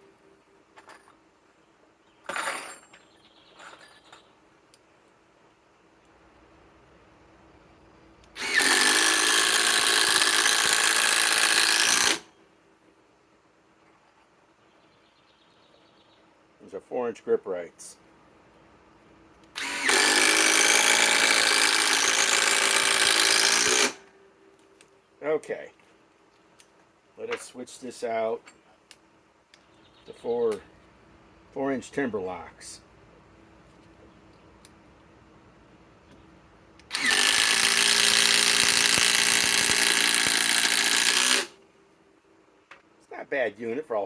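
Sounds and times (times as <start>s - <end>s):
impact driver hammering screw: 8.4s - 12.2s, 19.6s - 24.0s, 36.9s - 41.5s.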